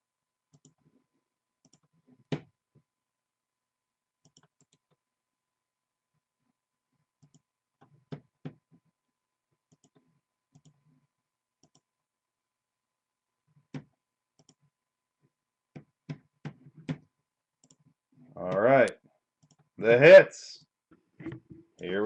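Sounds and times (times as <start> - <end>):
faint clicks and taps: 6.1 - 11.0, 13.4 - 19.8.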